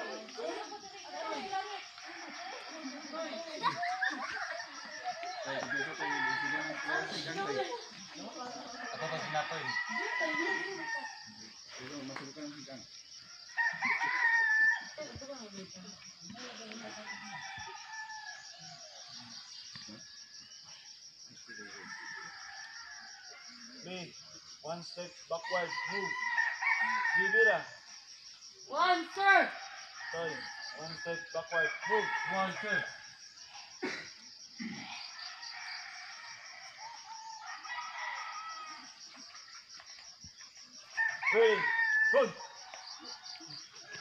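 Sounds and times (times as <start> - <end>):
insects droning: 0.0 - 44.0
rooster crowing: 4.0 - 11.4, 13.4 - 15.1, 16.6 - 19.1, 21.5 - 23.8, 25.3 - 27.9, 29.5 - 33.8, 34.6 - 39.4, 40.8 - 44.0.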